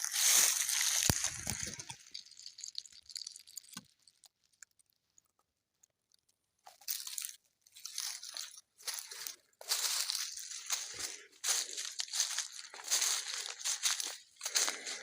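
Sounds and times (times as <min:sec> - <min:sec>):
footsteps crunching on forest floor: 0:00.0 - 0:02.0, 0:06.7 - 0:15.0.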